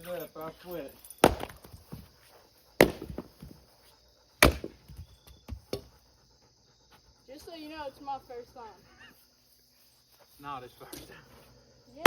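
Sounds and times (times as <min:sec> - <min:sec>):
splitting tool striking firewood: 0:01.2 - 0:01.7, 0:02.8 - 0:03.5, 0:04.4 - 0:05.0.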